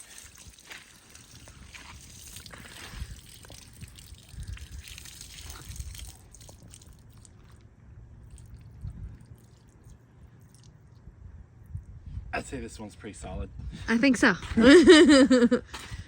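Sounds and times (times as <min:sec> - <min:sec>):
water trickling and dripping: 0:00.0 - 0:11.0.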